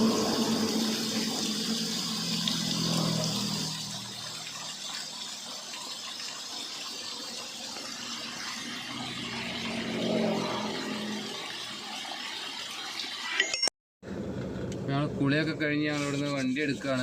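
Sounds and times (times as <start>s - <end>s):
stream water flowing: 0.0s - 13.4s.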